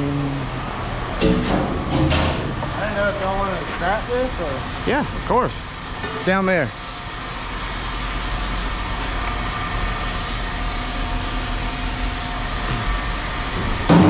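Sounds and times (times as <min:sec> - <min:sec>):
faint hum: 0:00.0 - 0:05.9
engine running: 0:00.0 - 0:14.0.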